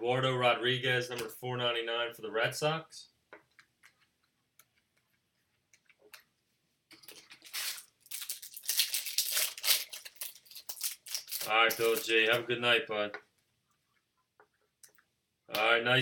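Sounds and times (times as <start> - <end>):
wrapper crinkling and tearing: 7.0 - 12.4.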